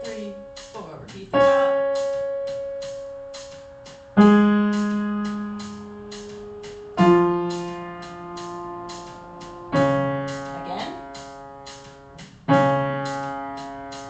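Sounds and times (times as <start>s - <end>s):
piano notes descending: 0.0s - 14.0s.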